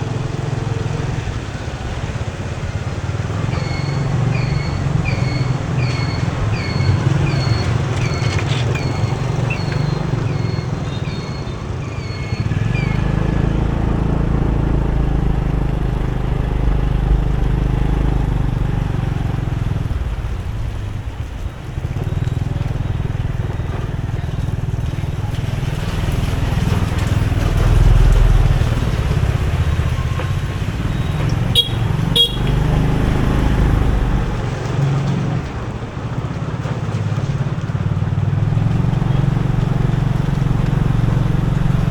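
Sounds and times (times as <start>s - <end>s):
motorbike engine: 0.0s - 41.9s
horn toots: 29.6s - 33.6s.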